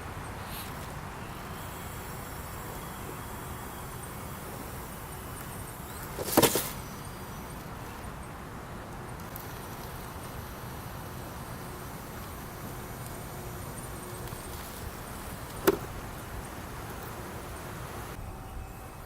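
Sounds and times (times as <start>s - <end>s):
faint background hiss: 0.0s - 19.0s
sharp knocks: 15.6s - 15.9s.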